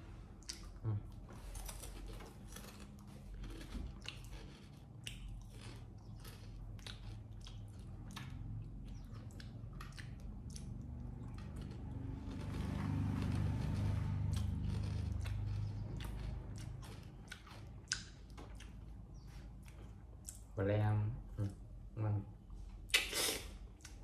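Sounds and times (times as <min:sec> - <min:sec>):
monkey crunching potato chips: 0:01.4 - 0:08.6, 0:10.6 - 0:18.2.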